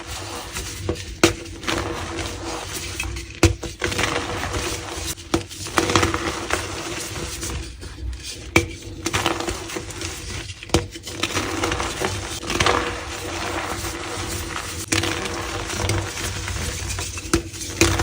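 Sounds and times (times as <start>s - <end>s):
chalk crunching by hand: 0.0s - 3.2s.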